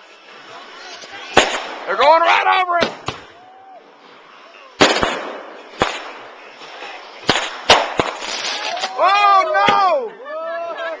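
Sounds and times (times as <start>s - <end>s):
fireworks crackling hiss: 0.0s - 10.1s
fireworks bangs: 1.0s - 3.4s, 4.7s - 10.0s.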